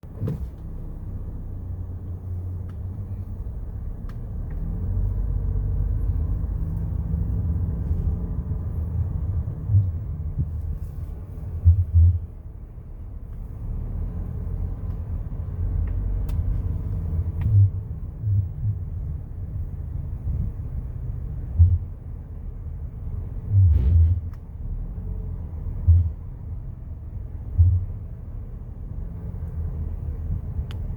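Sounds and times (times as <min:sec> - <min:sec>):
car engine rumble: 0:00.0 - 0:30.9
short thumps: 0:08.0 - 0:12.4, 0:27.5 - 0:28.0.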